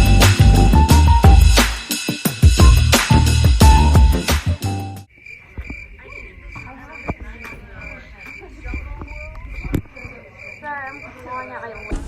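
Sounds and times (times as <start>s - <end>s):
background music: 0.0s - 5.1s
insect chirping: 5.0s - 12.0s.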